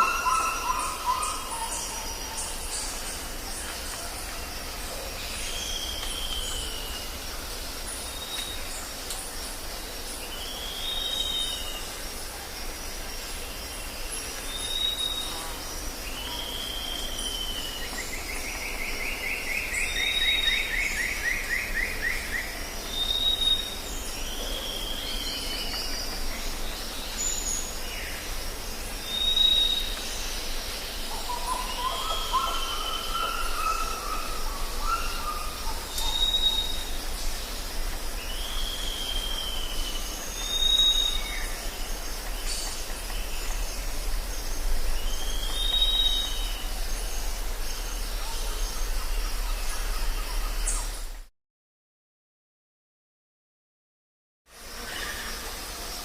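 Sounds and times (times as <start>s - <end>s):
low wavering bird calls: 0.0s - 3.3s, 31.0s - 37.2s
birds calling with whistled notes: 0.0s - 51.3s.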